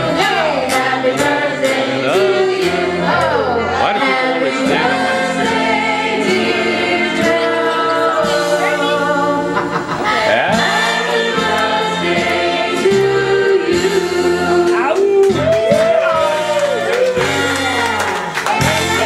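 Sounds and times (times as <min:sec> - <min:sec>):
voices singing together: 0:00.0 - 0:19.0.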